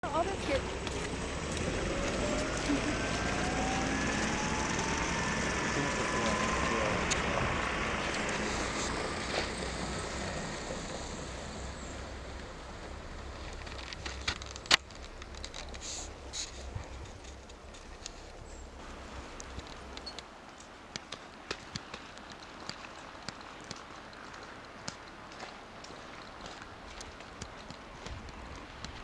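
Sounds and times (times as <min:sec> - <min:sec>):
passing vehicle road noise: 0:00.0 - 0:20.2.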